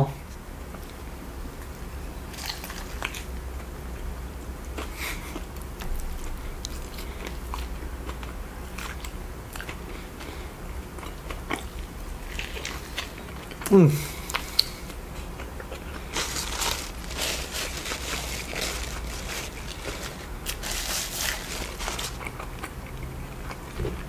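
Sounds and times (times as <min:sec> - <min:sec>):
person biting and chewing: 0:11.0 - 0:23.7.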